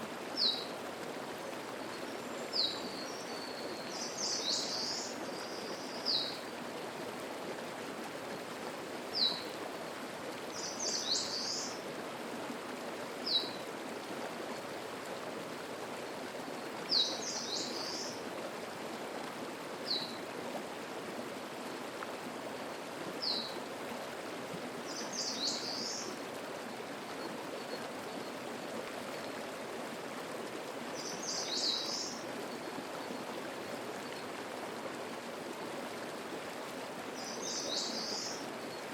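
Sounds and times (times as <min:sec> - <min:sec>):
mountain stream babbling: 0:00.0 - 0:38.9.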